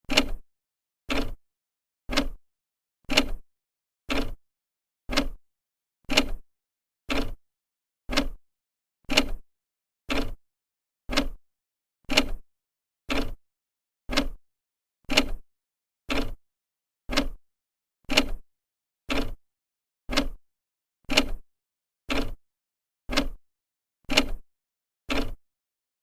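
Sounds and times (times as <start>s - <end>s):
clock ticking: 2.1s - 2.4s, 4.1s - 4.4s, 5.1s - 5.4s, 8.1s - 8.4s, 10.1s - 10.4s, 11.1s - 11.4s, 13.1s - 13.4s, 14.1s - 14.4s, 17.1s - 17.4s, 20.1s - 20.4s, 22.1s - 22.4s, 23.1s - 23.4s.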